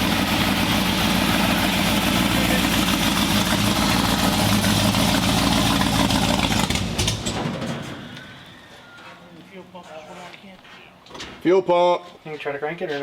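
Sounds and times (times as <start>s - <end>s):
loud engine stuttering and stalling: 0.0s - 8.5s.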